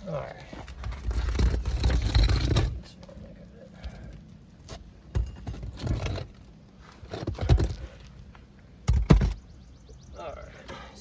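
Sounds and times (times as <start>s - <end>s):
roof shingles scraping and tearing: 0.6s - 3.0s.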